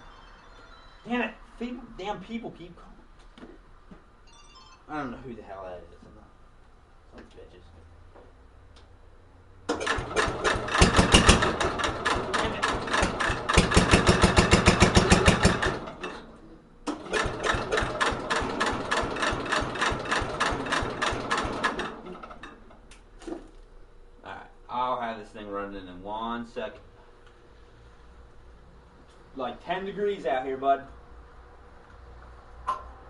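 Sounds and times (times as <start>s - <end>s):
engine cranking by starter: 9.7s - 22.9s.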